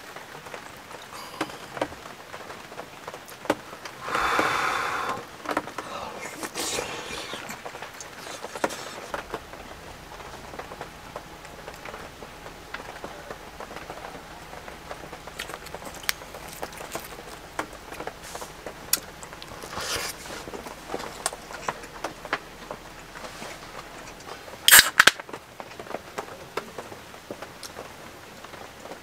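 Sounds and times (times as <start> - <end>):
rain pattering on tent fabric: 0.0 - 29.0.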